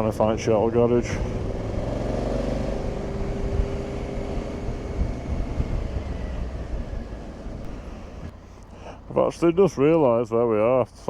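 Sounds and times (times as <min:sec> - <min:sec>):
motorcycle engine running: 0:00.0 - 0:08.4
road and wind noise: 0:00.0 - 0:11.0.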